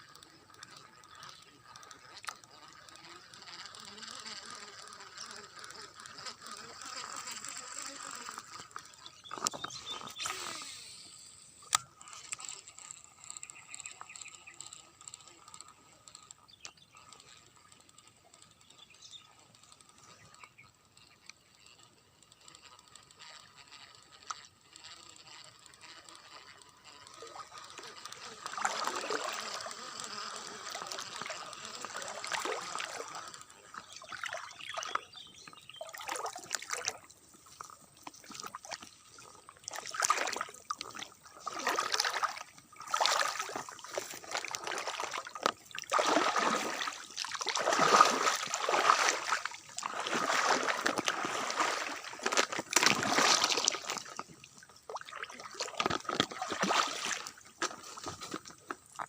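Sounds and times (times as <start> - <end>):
faint high whine: 0.0 - 55.7
water splashing and sloshing: 27.1 - 29.8, 30.4 - 35.0, 35.8 - 59.0.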